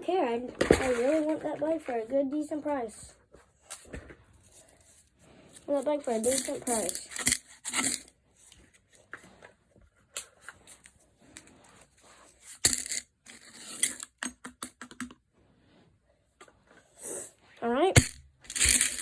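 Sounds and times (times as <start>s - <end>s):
coin wrappers rustling: 5.7s - 8.1s, 12.4s - 14.2s, 18.0s - 19.0s
coins clinking: 6.0s - 8.1s, 12.6s - 14.8s, 18.0s - 19.0s.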